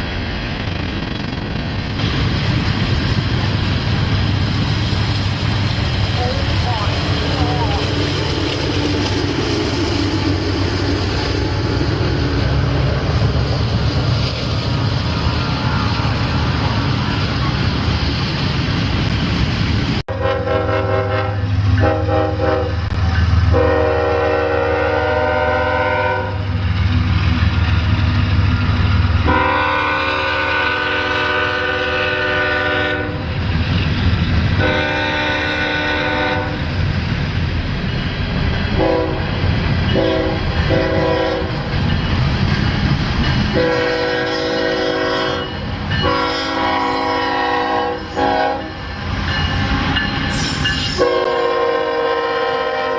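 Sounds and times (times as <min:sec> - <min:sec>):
passing train rumble: 0:00.0 - 0:52.9
locomotive air horn blasts: 0:20.1 - 0:22.9, 0:23.5 - 0:26.5, 0:29.2 - 0:33.2, 0:34.6 - 0:36.6, 0:38.8 - 0:39.2, 0:40.0 - 0:41.6, 0:43.6 - 0:48.8, 0:50.9 - 0:52.9.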